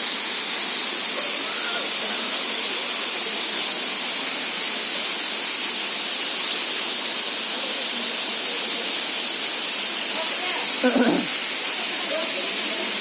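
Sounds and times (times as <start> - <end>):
waterfall hiss: 0.0 - 13.0.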